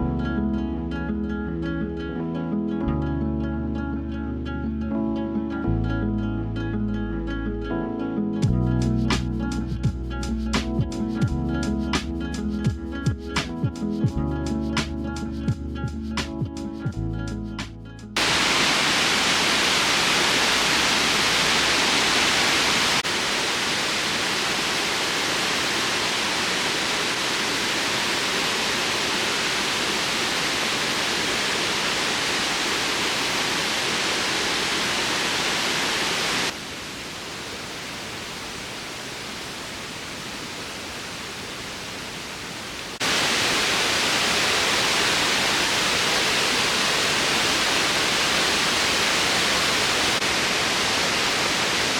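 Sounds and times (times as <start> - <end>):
waterfall rushing: 18.2 - 51.9.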